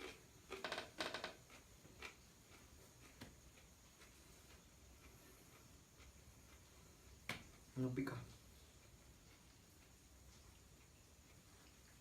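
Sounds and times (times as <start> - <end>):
crunching bites of chile: 0.0 - 4.1.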